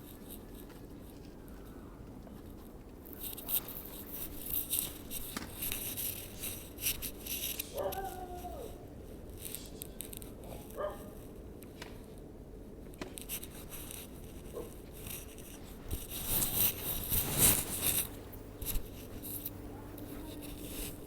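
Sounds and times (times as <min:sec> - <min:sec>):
scuffling and scraping: 0:13.0 - 0:21.0.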